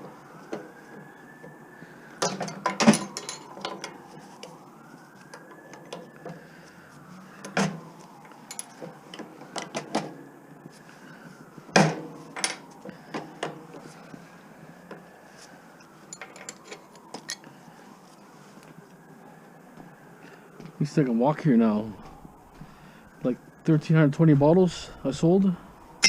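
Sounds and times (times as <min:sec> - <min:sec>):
faint wail rising and falling: 0:00.0 - 0:26.0
hand tools clanking on metal: 0:02.2 - 0:04.0.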